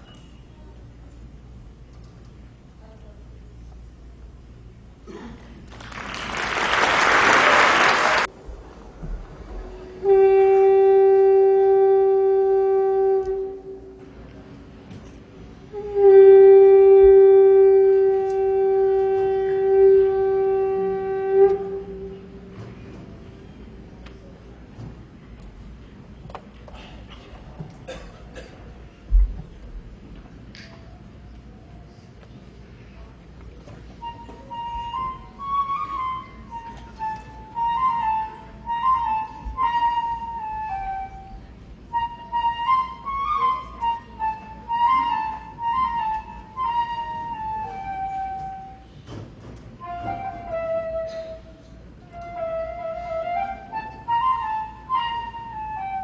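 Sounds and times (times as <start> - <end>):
flute-like melody: 9.5 - 14.1, 15.7 - 23.0, 33.9 - 49.1, 49.8 - 56.0
wind instrument long note: 9.6 - 14.2, 15.7 - 22.9, 49.8 - 56.0.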